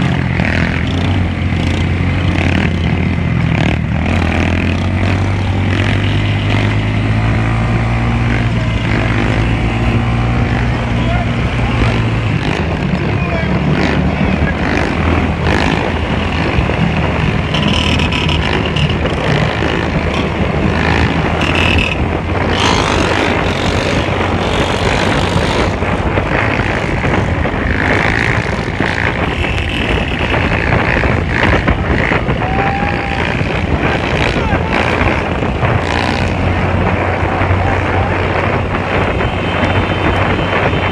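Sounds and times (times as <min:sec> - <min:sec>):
motorcycle engines running: 0:00.0 - 0:40.9.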